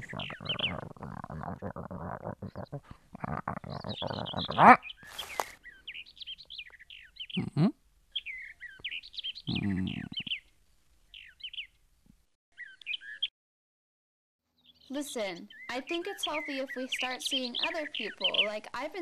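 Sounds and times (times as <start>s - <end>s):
birds chirping: 0.0s - 11.8s, 12.5s - 13.3s, 14.5s - 19.0s.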